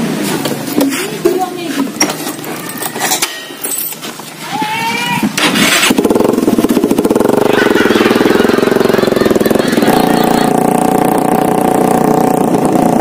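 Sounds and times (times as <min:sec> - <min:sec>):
motorcycle engine running: 0:05.2 - 0:13.0.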